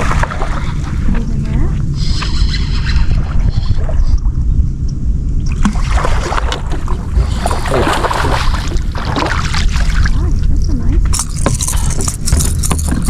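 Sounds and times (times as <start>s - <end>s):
water splashing around boat: 0.0s - 2.6s, 5.4s - 13.0s
wind rumble on microphone: 0.0s - 13.0s.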